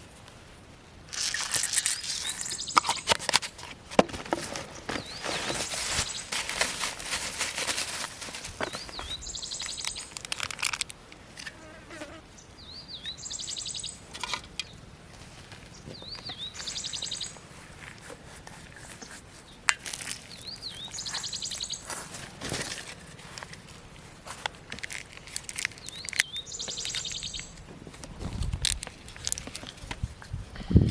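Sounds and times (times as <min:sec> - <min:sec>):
soft scuffs and rustles: 0:01.1 - 0:10.2, 0:15.0 - 0:30.5
bird whistle and rattling trill: 0:01.3 - 0:03.1, 0:08.6 - 0:10.2, 0:12.6 - 0:14.0, 0:16.0 - 0:17.4, 0:20.3 - 0:21.9, 0:25.7 - 0:27.6.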